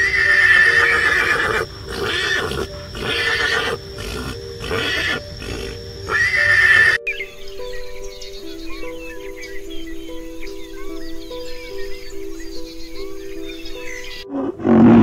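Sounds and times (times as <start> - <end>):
horse neighing: 0.0 - 7.0, 14.3 - 15.0.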